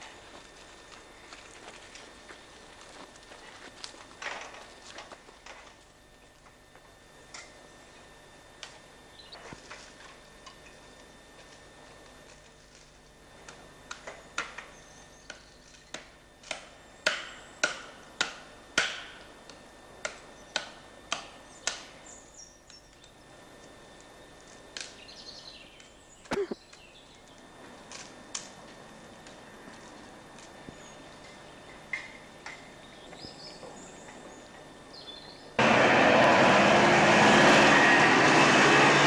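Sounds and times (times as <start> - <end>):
footsteps on hard ground: 0.0 - 5.9.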